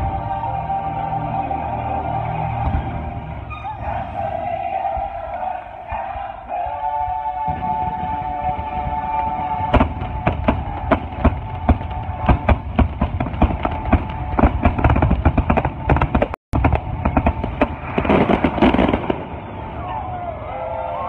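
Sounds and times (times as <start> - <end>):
music: 0.0 - 21.0
fireworks crackling: 7.5 - 19.9
fireworks bangs: 7.5 - 20.3.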